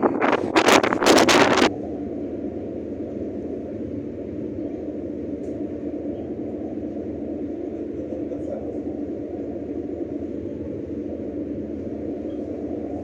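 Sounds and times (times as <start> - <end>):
wind noise on microphone: 0.0 - 7.7
faint hum: 0.0 - 13.0
low engine rumble: 0.0 - 13.0.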